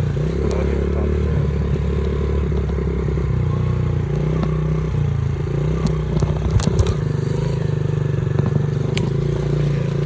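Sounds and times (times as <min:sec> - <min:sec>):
motorcycle engine running: 0:00.0 - 0:10.0
sharp clicks and rattles: 0:05.7 - 0:10.0.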